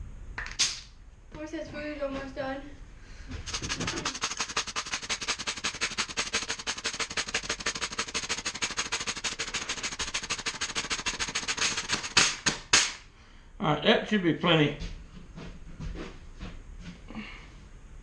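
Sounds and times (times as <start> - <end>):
rapid mechanical clicking: 3.4 - 13.0.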